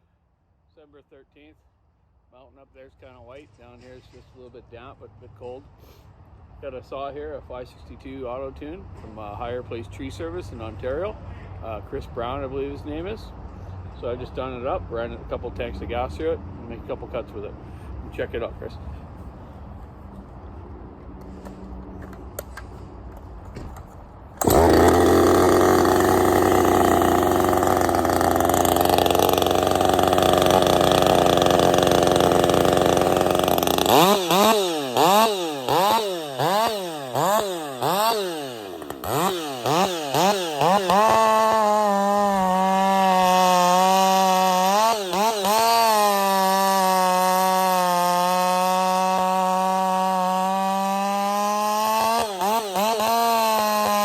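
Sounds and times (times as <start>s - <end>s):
chainsaw cutting and revving: 24.4s - 54.0s.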